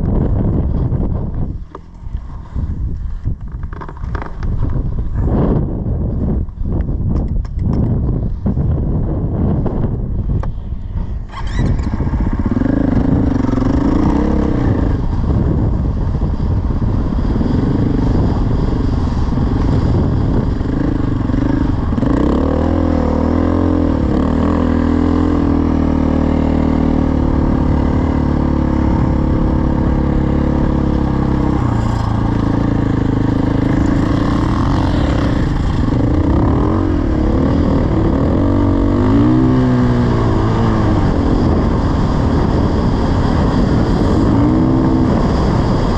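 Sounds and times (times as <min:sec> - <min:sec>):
dirt bike engine revving: 0:11.2 - 0:15.6, 0:17.3 - 0:45.9.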